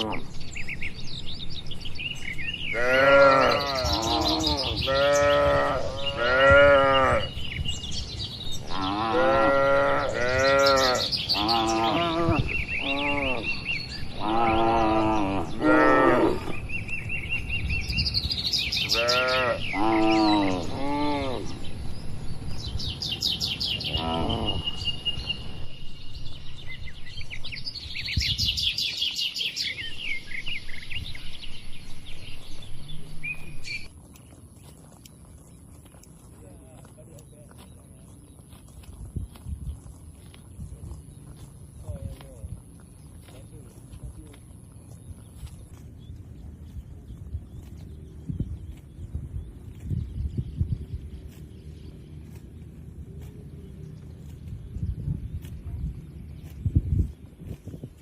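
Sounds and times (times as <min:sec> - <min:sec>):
cattle mooing: 0:00.0 - 0:00.3, 0:02.7 - 0:07.4, 0:08.6 - 0:16.6, 0:18.9 - 0:21.5, 0:23.8 - 0:24.9
birds chirping: 0:00.0 - 0:58.0.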